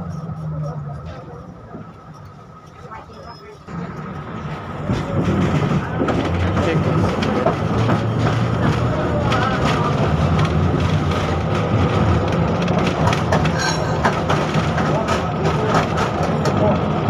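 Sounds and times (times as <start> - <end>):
tram wheels rumbling: 0.0 - 17.0
clicks and rattles from rails: 3.8 - 17.0.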